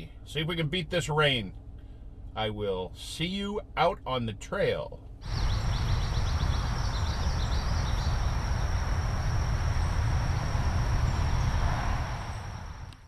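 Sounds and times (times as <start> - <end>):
low rumble: 4.9 - 13.0
high-pitched insect drone: 5.3 - 12.8.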